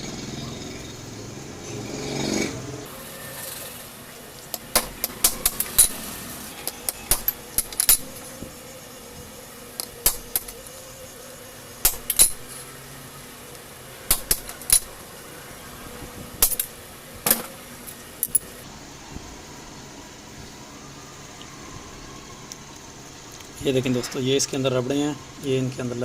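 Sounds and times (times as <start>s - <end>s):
hand tools clinking on metal parts: 4.5s - 8.3s, 9.8s - 10.7s, 11.8s - 12.6s, 14.1s - 15.0s, 16.4s - 18.6s.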